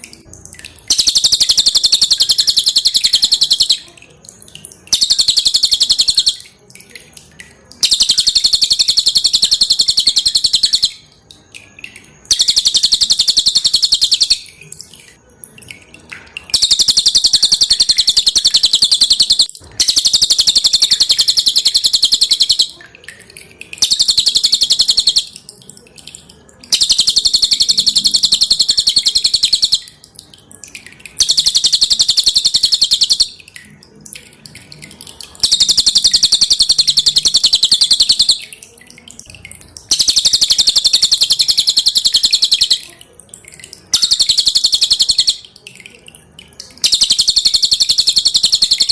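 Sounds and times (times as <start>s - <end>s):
songbird singing rapid high notes: 0.8s - 3.9s, 4.9s - 6.6s, 7.8s - 11.1s, 12.2s - 14.6s, 16.5s - 22.8s, 23.8s - 25.4s, 26.7s - 30.0s, 31.2s - 33.4s, 35.4s - 38.6s, 39.9s - 43.0s, 43.9s - 45.6s, 46.8s - 48.9s.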